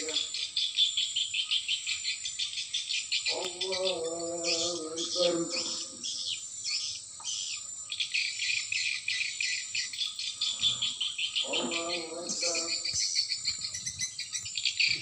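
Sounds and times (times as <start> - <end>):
drawn-out voice: 0.0 - 0.2, 3.3 - 6.0, 11.4 - 12.8.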